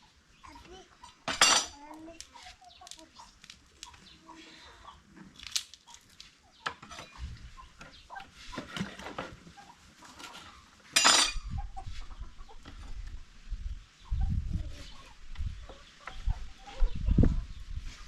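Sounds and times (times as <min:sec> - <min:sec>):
chickens clucking: 0:00.0 - 0:18.0
pots and utensils clinking: 0:10.9 - 0:11.4.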